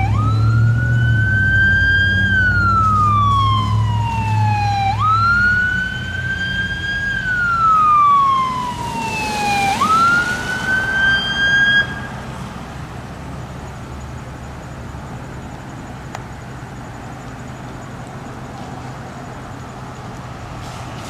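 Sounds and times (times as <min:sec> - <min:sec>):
fire engine siren wailing: 0:00.0 - 0:12.4
vehicle and road rumble: 0:00.0 - 0:21.0.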